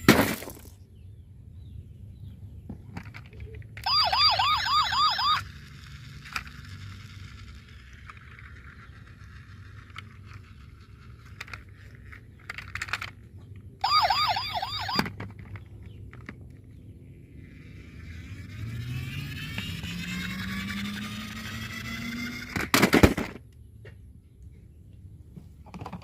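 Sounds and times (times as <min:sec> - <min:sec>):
toy electronic siren yelping: 0:03.8 - 0:06.0, 0:13.8 - 0:15.2, 0:17.5 - 0:22.6.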